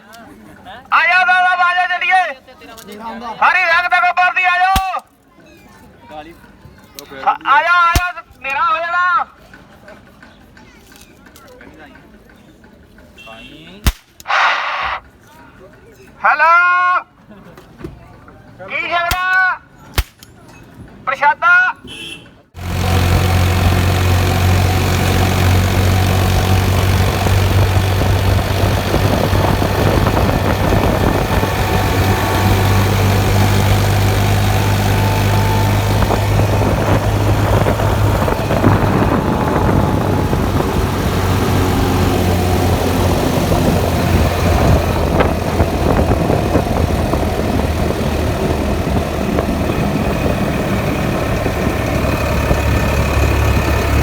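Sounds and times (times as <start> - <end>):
tractor diesel engine droning: 22.6 - 54.0.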